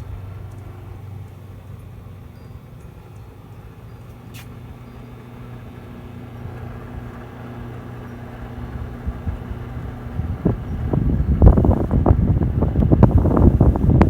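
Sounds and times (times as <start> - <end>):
microwave oven humming: 0.0 - 14.0
wind rumble on microphone: 8.4 - 14.0.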